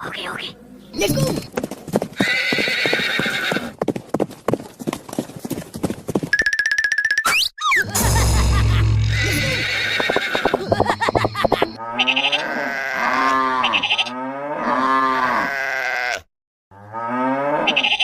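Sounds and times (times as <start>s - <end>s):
animals bleating: 2.2s - 3.7s, 9.0s - 10.8s, 11.8s - 16.3s, 17.0s - 18.0s.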